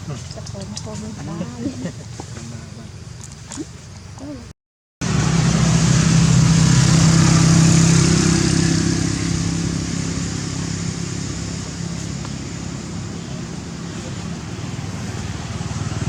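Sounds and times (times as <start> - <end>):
vehicle engine running: 5.0 - 16.0.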